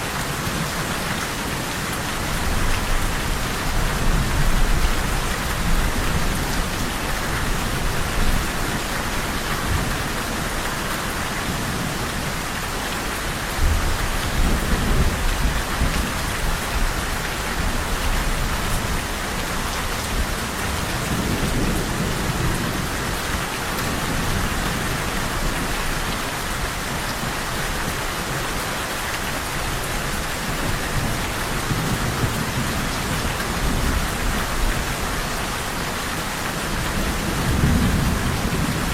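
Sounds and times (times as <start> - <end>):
steady rain on a surface: 0.0 - 38.9
low thunder rumbling: 36.9 - 38.9.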